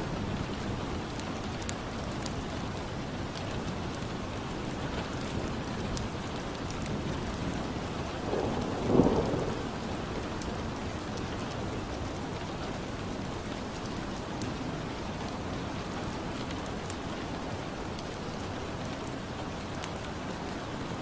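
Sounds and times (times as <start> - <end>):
steady rain: 0.0 - 21.0
thunder rumble: 8.2 - 11.0.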